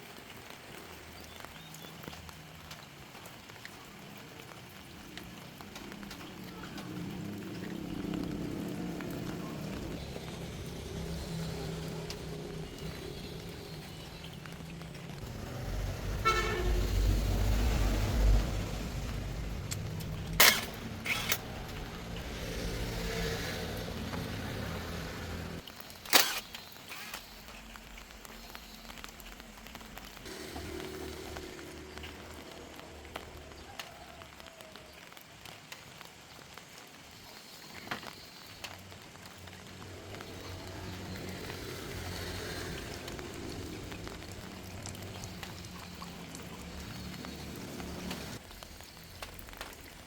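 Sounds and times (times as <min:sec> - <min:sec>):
car horn toot: 0:16.2 - 0:17.0.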